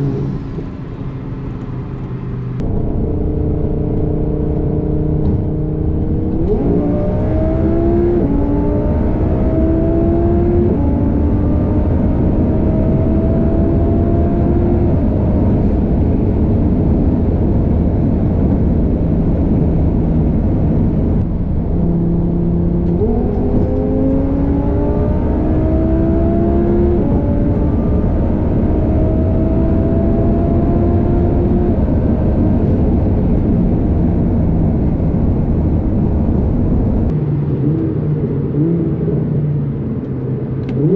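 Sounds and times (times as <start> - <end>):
car engine accelerating through gears: 0.0 - 40.9
wind and road noise: 0.0 - 40.9.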